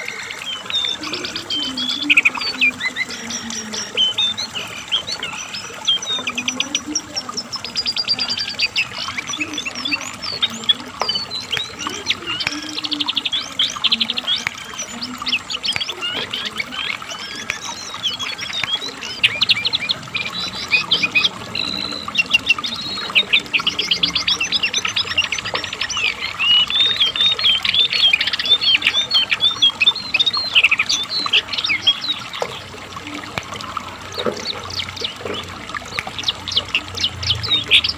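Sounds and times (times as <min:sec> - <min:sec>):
bird singing rapid chattering trills: 0:00.0 - 0:37.9.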